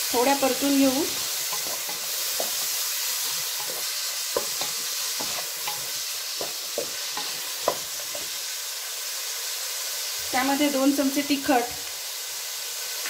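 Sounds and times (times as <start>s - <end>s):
beans sizzling in oil: 0.0s - 13.0s
spatula scraping and knocking pan: 0.5s - 8.4s.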